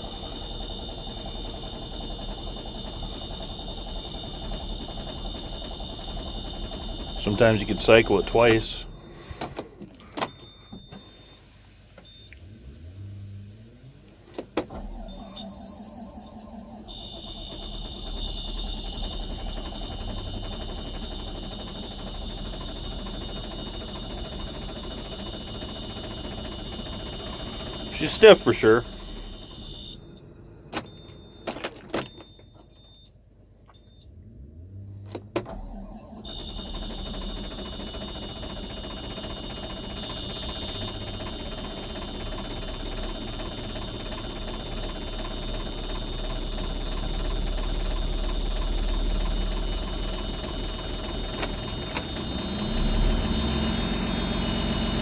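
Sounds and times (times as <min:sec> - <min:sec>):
low hum: 0:12.3 - 0:22.2.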